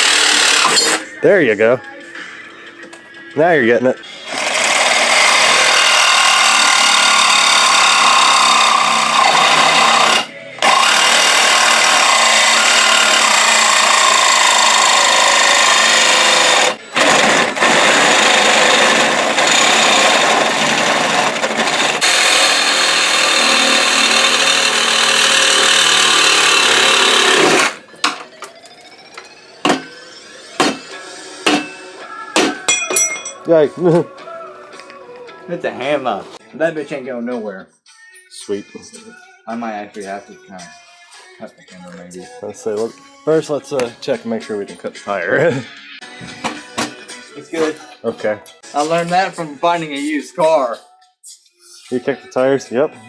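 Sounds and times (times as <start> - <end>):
reciprocating saw cutting: 0.0 - 1.1, 4.0 - 27.8
metal clinks and knocks: 32.6 - 33.5.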